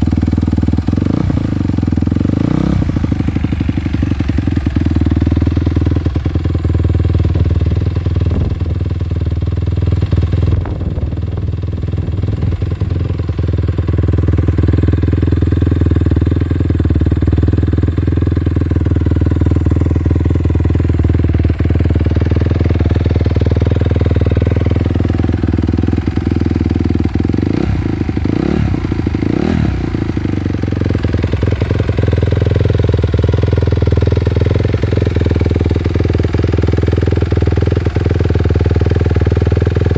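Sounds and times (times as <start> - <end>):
motocross engine revving: 1.0 - 3.4, 26.0 - 31.9.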